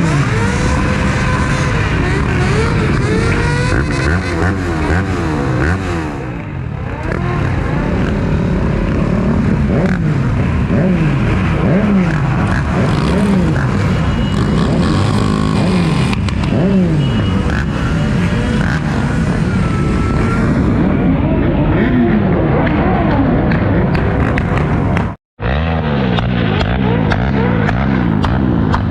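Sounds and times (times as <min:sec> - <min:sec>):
motorcycle engines revving: 0:00.0 - 0:28.9.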